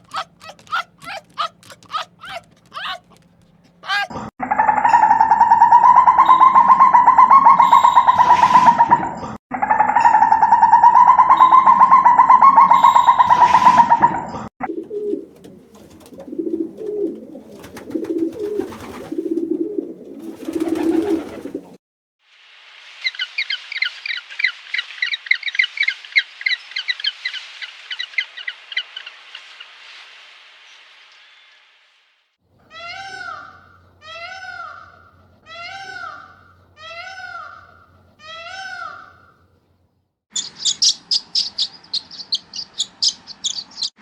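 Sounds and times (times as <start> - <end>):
small bird twittering: 0.0 - 3.2
pigeons cooing: 0.0 - 4.2, 14.6 - 21.8.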